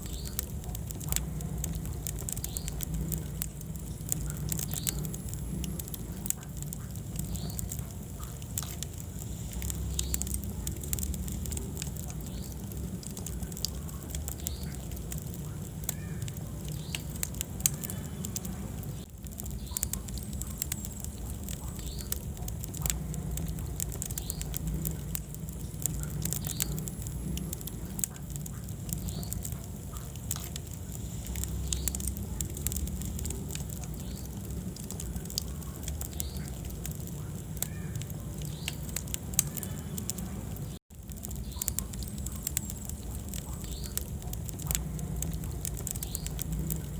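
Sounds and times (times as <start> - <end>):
low rumble of flame: 0.0 - 46.9
wood fire crackling and popping: 0.0 - 46.9.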